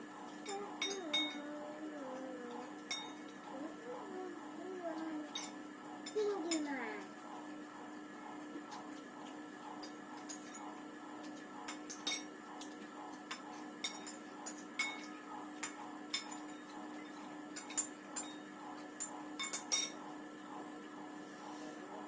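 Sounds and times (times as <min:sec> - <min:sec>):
cutlery clinking on plates: 0:11.7 - 0:20.0.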